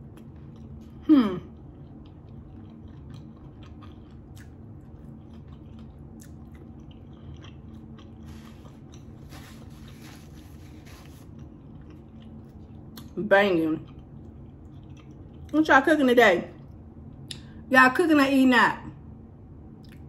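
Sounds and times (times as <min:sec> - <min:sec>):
person chewing food: 0:00.0 - 0:13.2, 0:13.8 - 0:15.6, 0:19.8 - 0:20.0.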